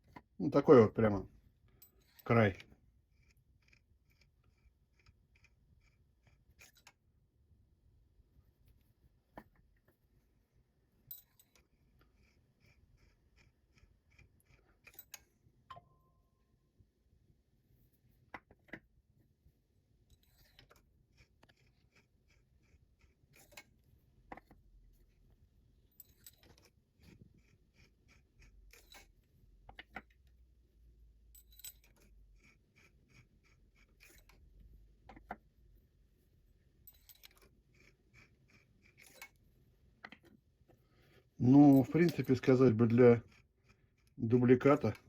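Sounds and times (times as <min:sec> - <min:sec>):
faint clicks of small parts: 0:01.6 - 0:07.2, 0:11.0 - 0:15.8, 0:18.0 - 0:30.4, 0:31.1 - 0:35.7, 0:36.6 - 0:45.0.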